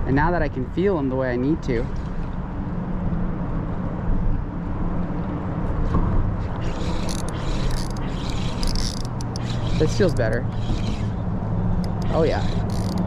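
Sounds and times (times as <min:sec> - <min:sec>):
engine running steadily: 0:05.9 - 0:13.0
short clicks and scratches: 0:06.4 - 0:11.2, 0:11.8 - 0:13.0.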